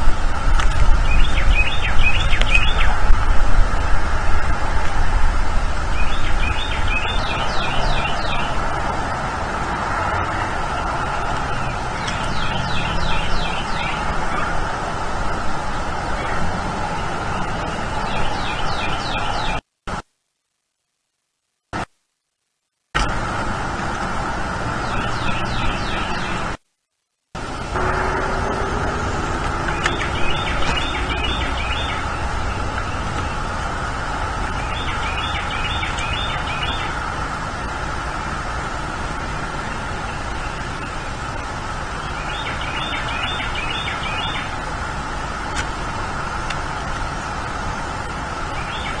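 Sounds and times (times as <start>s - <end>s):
outdoor background noise: 0.0s - 49.0s.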